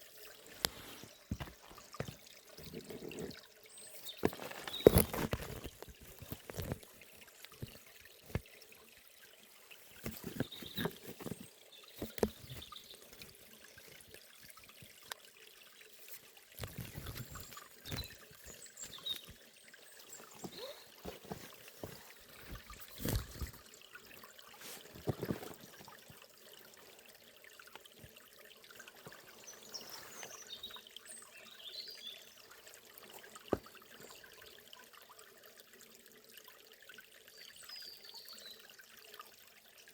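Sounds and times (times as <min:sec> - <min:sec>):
stream trickling over stones: 0:00.0 - 0:39.9
faint bird chirps: 0:20.0 - 0:21.1.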